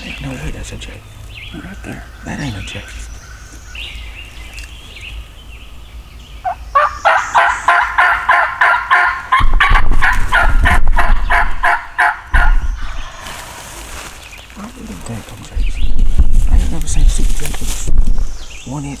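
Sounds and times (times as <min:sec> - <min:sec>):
wild turkey calling: 0:00.0 - 0:15.8
low rumble: 0:09.4 - 0:14.2.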